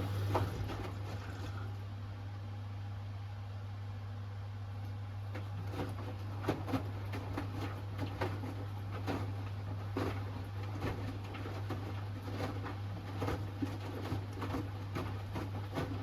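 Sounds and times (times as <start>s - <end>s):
steady low hum: 0.0s - 2.4s
laundry and water sloshing: 5.4s - 16.0s.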